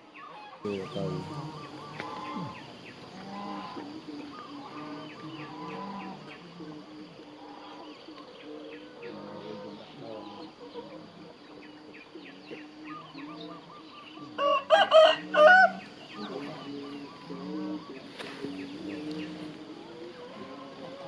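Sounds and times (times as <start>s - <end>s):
rooster crowing: 14.4s - 15.9s.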